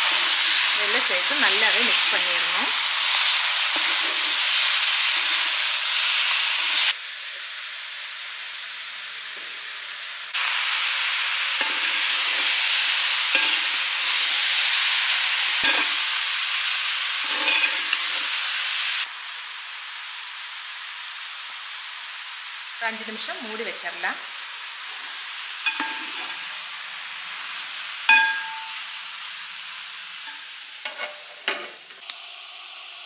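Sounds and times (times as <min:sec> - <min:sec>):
food sizzling in a steel pot: 0:00.0 - 0:33.0
metal spatula scraping: 0:11.6 - 0:14.5, 0:15.6 - 0:16.0, 0:17.2 - 0:18.4, 0:25.6 - 0:26.4, 0:30.3 - 0:32.0.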